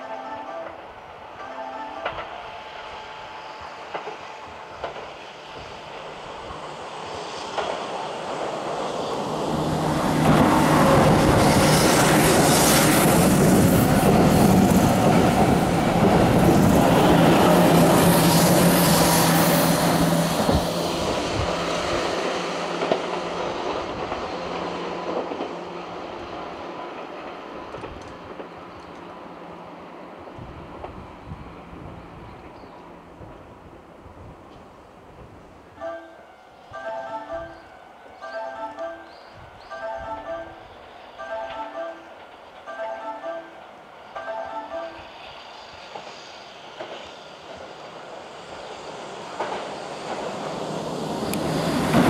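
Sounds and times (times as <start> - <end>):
train wheels clattering on rails: 3.8 - 6.7, 7.4 - 29.2, 45.2 - 52.0
train motor hum: 46.8 - 52.0.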